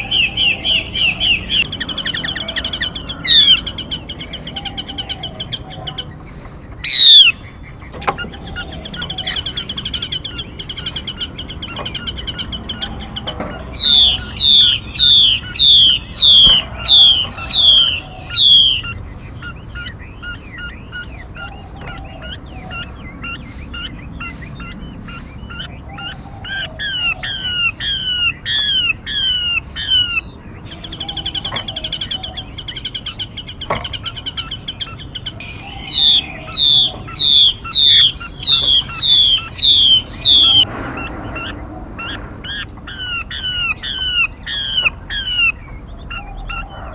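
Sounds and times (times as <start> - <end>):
bird trill: 0.0 - 46.9
faint chattering bird calls: 0.0 - 46.9
whistled songbird calls: 0.0 - 46.9.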